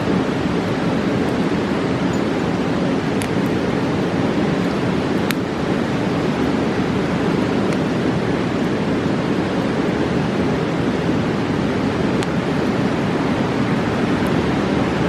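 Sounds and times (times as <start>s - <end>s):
river rushing: 0.0s - 15.0s
campfire pops: 0.2s - 8.0s, 12.1s - 12.5s.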